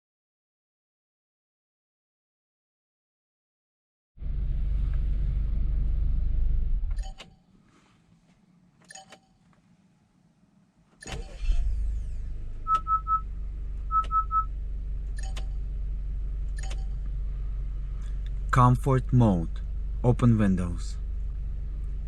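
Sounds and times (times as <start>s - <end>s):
car engine idling: 4.2s - 7.0s, 11.1s - 22.0s
car engine starting: 4.2s - 7.3s, 10.9s - 22.0s
short beeps: 12.7s - 13.2s, 13.9s - 14.5s.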